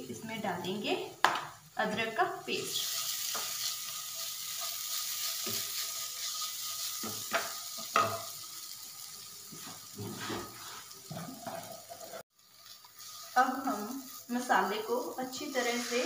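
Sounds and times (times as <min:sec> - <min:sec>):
masala sizzling in oil: 0:00.0 - 0:16.0
spoon knocking in pan: 0:07.0 - 0:08.3
spoon scraping pan: 0:09.5 - 0:12.2.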